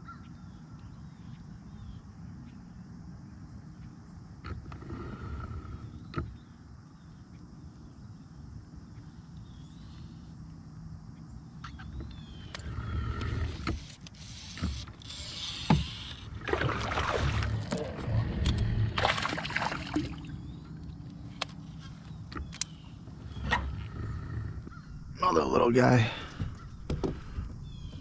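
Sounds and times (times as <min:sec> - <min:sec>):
water splashing around a kayak: 0:15.7 - 0:21.7.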